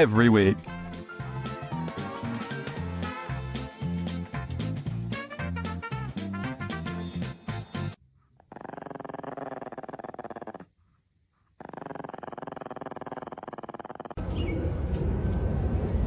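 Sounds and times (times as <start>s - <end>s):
dog growling: 8.3s - 10.7s, 11.6s - 14.2s
outdoor background noise: 8.5s - 16.0s.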